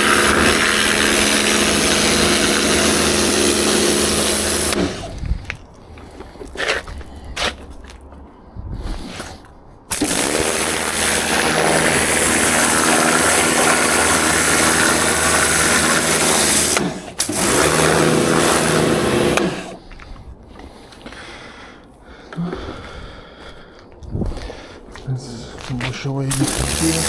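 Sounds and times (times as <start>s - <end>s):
electric power tool running: 0.0s - 5.2s, 9.9s - 19.8s, 26.3s - 27.0s.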